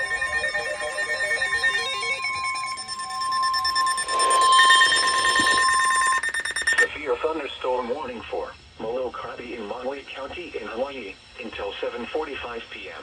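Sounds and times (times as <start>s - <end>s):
buzzing alert signal: 0.0s - 6.9s
steady high alert tone: 0.0s - 6.9s
stepping electronic melody: 0.0s - 6.9s.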